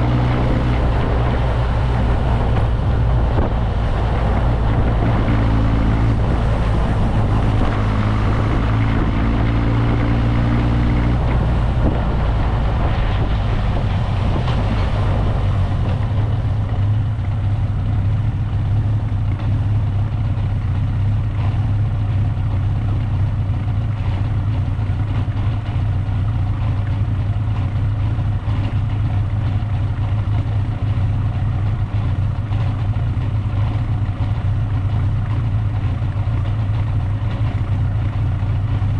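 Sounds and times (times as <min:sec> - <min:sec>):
wind rush over microphone: 0:00.0 - 0:17.1
motorcycle engine running: 0:00.0 - 0:38.9.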